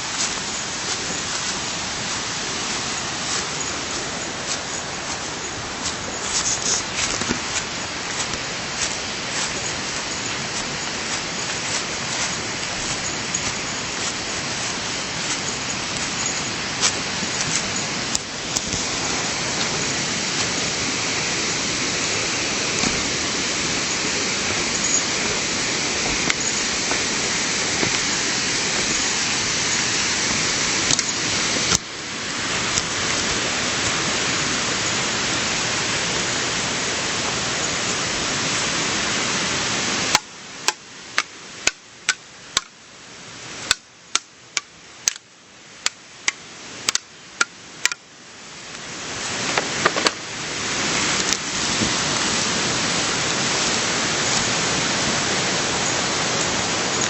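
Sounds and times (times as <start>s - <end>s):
stream water rushing: 0.0s - 57.0s
sharp irregular clicks: 43.7s - 48.0s.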